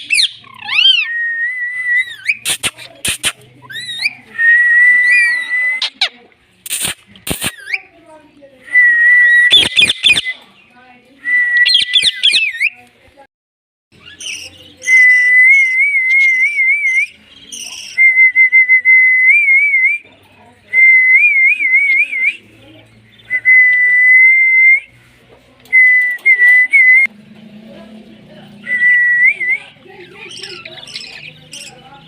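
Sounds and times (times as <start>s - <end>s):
parrot chirping: 0.0s - 1.1s, 1.9s - 4.3s, 9.4s - 10.4s, 11.6s - 12.8s, 13.9s - 15.6s, 16.2s - 18.0s, 29.8s - 31.9s.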